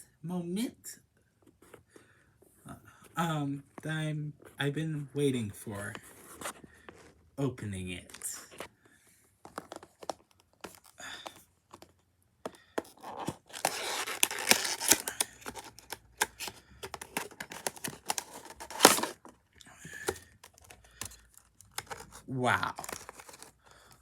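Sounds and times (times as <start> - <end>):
packaging ripping and crinkling: 12.8 - 19.3, 19.9 - 23.6.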